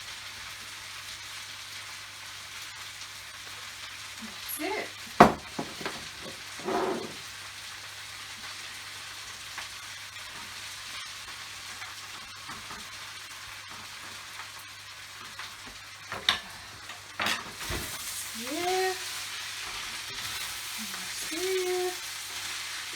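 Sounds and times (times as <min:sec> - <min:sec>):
food sizzling in a pan: 0:00.0 - 0:22.9
utensil knocking on a pan: 0:05.2 - 0:07.2
utensil scraping a pan: 0:05.4 - 0:07.3.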